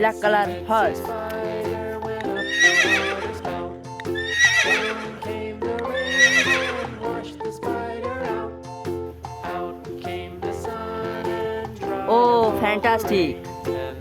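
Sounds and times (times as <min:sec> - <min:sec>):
background music: 0:00.0 - 0:14.0
horse whinnying: 0:02.4 - 0:03.4, 0:04.2 - 0:05.2, 0:06.0 - 0:07.1.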